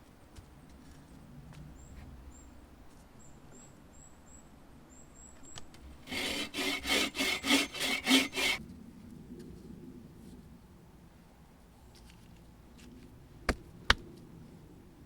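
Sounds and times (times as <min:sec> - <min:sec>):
hand saw cutting wood: 0:06.0 - 0:08.6.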